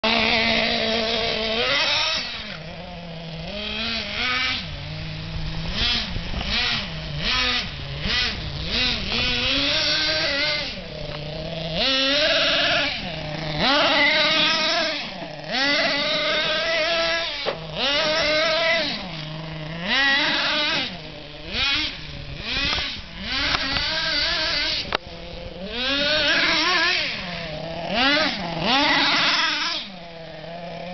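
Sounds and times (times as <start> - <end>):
radio-controlled truck engine revving: 0.0 - 30.9.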